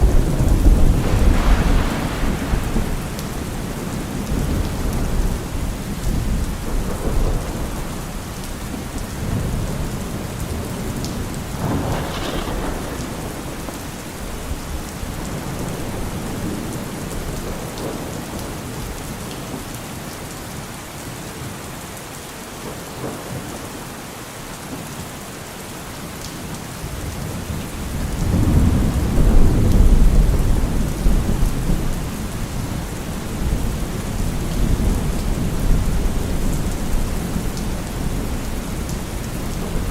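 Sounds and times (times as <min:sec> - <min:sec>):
thunder clap: 0:00.0 - 0:08.2, 0:11.0 - 0:18.2
rolling thunder: 0:00.0 - 0:19.0, 0:27.6 - 0:39.9
steady rain falling: 0:00.0 - 0:39.9.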